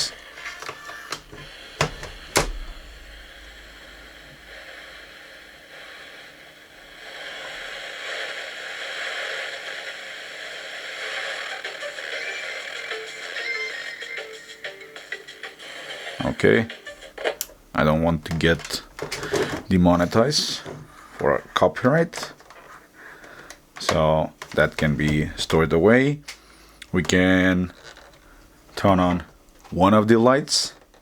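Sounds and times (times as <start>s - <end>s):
music from radio: 0.0s - 2.5s, 3.1s - 17.6s.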